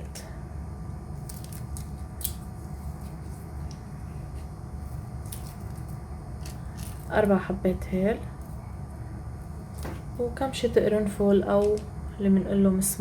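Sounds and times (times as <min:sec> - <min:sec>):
cardamom pods cracking open: 0:01.1 - 0:03.9, 0:04.9 - 0:07.2.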